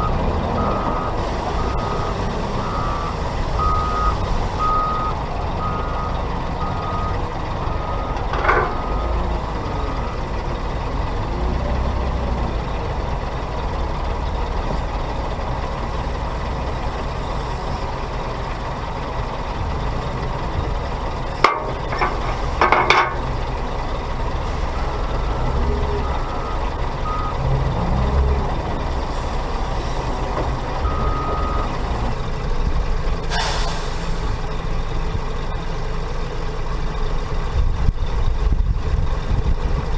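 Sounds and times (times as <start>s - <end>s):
reversing alarm beeping: 0.0s - 10.3s, 24.7s - 27.4s, 30.8s - 31.9s
heavy diesel engines running: 0.0s - 39.9s.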